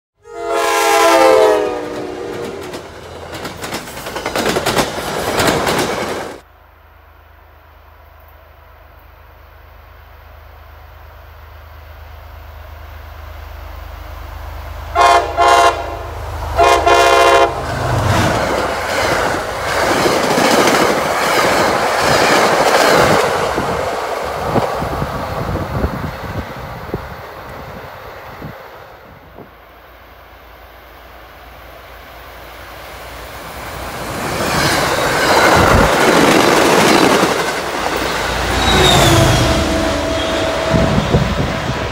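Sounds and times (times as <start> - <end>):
train horn blasts: 0.2 - 2.8, 14.9 - 17.7, 38.6 - 41.9
train wheels rumbling on rail: 0.4 - 6.5, 7.2 - 41.9.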